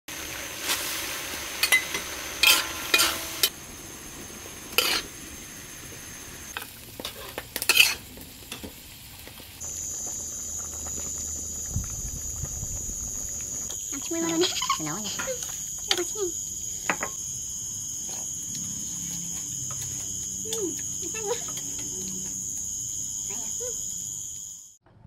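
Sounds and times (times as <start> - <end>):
meat sizzling in a wok: 0.1 - 24.8
spatula scraping a pan: 1.6 - 3.5, 4.7 - 5.1, 6.6 - 8.1, 14.1 - 15.7.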